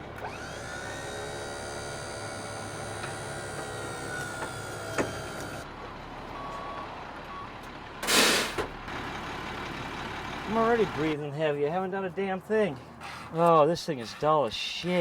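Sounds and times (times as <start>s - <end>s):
motor whining: 0.0s - 5.7s.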